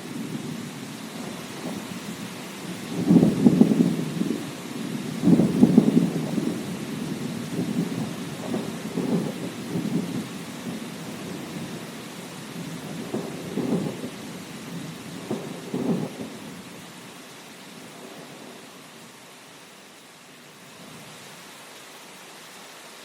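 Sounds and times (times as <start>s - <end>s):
thunder rumbling: 0.0s - 16.8s
rain hissing: 0.0s - 23.0s.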